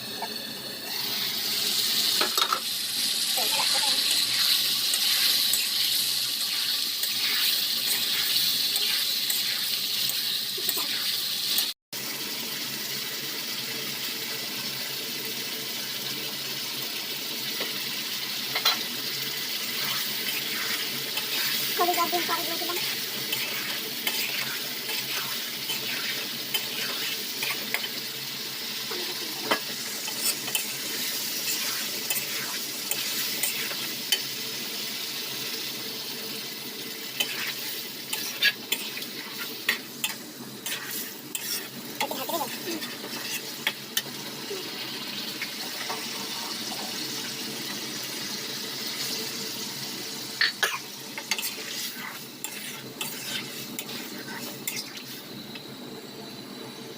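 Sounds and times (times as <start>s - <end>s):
chicken sizzling in a pan: 0.0s - 56.9s
spoon clinking and scraping pan: 4.0s - 11.7s, 37.2s - 44.1s, 50.4s - 55.2s.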